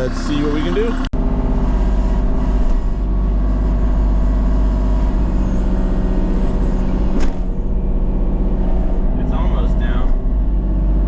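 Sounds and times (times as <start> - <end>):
land-clearing machine engine running: 0.0 - 11.0.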